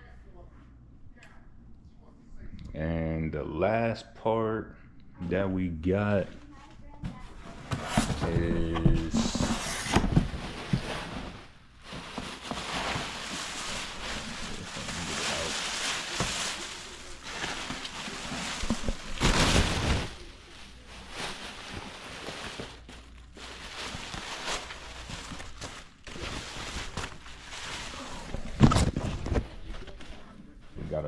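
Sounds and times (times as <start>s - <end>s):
packaging crinkling: 7.5s - 29.1s.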